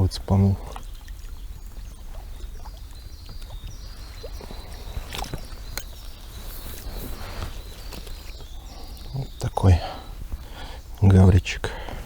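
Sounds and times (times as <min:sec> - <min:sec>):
water splashes: 0:00.0 - 0:09.1.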